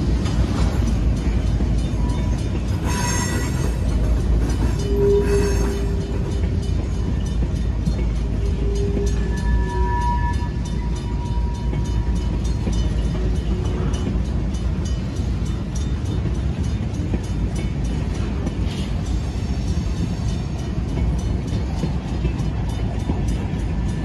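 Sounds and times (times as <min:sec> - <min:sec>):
steel wheels rumbling on rail: 0:00.0 - 0:24.0
high squeal: 0:08.6 - 0:12.0.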